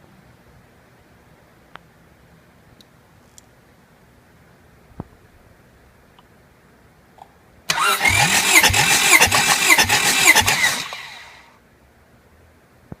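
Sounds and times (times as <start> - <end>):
starter motor cranking: 7.7 - 11.4.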